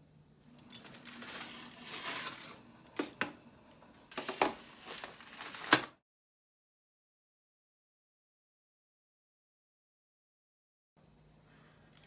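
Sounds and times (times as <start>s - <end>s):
rustling and crinkling: 0.6s - 2.6s, 4.1s - 6.0s.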